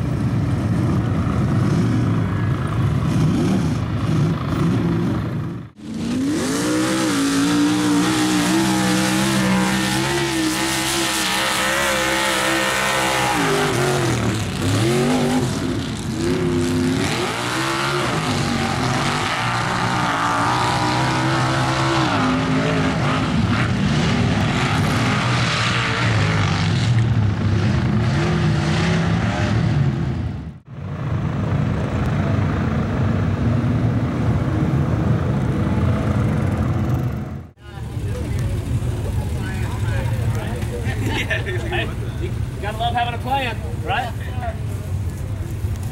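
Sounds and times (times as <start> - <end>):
truck engine revving hard: 3.0 - 30.6.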